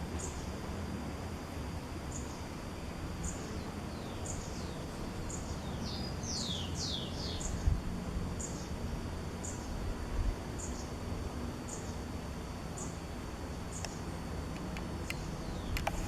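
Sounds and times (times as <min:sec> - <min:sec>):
faint high whine: 0:00.0 - 0:16.0
low rumbling background noise: 0:00.0 - 0:16.0
bird chirping: 0:03.2 - 0:07.6.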